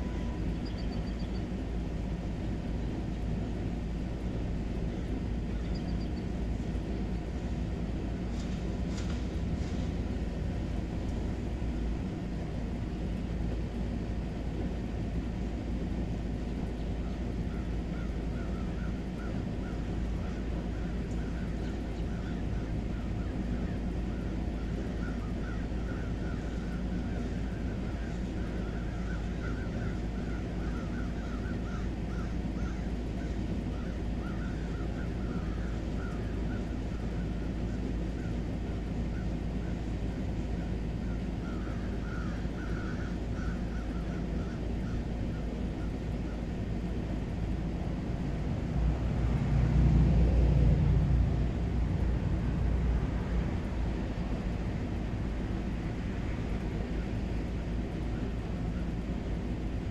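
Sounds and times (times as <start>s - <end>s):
low outdoor hum: 0.0s - 59.9s
short bird calls: 41.1s - 46.4s.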